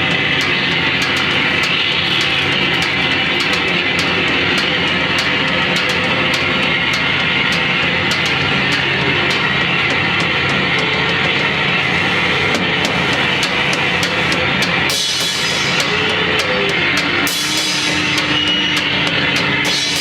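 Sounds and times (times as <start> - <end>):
sharp clicks: 0.0 - 10.1
distorted noise music: 0.0 - 20.0.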